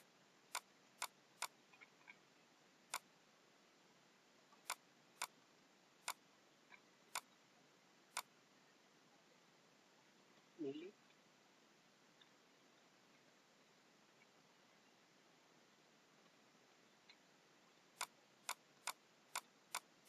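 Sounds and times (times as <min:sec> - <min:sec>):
computer mouse clicking: 0:00.0 - 0:02.2, 0:04.6 - 0:05.4, 0:06.0 - 0:07.3, 0:08.1 - 0:08.3, 0:18.0 - 0:20.0
faint ticks: 0:00.0 - 0:02.3, 0:02.9 - 0:03.1, 0:04.4 - 0:05.4, 0:06.0 - 0:07.5, 0:08.1 - 0:08.4, 0:12.1 - 0:13.3, 0:16.2 - 0:20.0.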